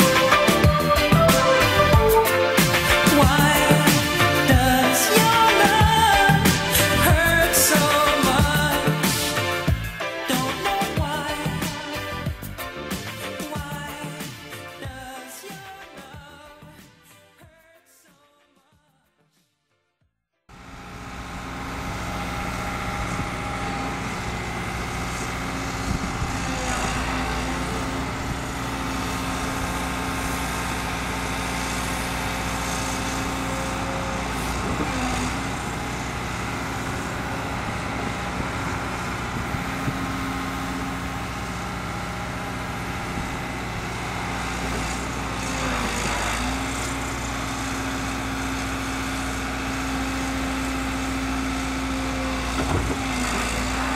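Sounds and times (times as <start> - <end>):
excavator diesel engine: 0.0 - 16.8, 20.5 - 53.9.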